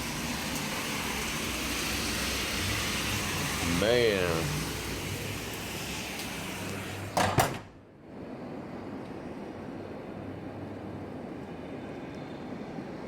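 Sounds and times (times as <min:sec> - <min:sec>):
heavy rain hiss: 0:00.0 - 0:07.2.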